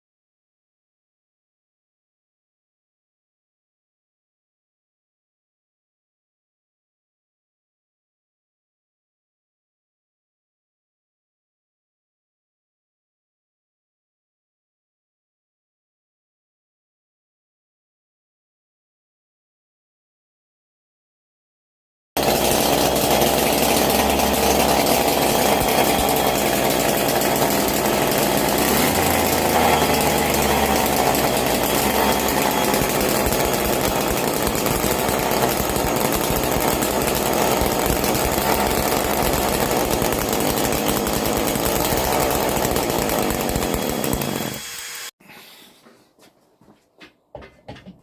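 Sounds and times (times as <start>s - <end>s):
two-stroke engine buzzing: 22.2s - 45.1s.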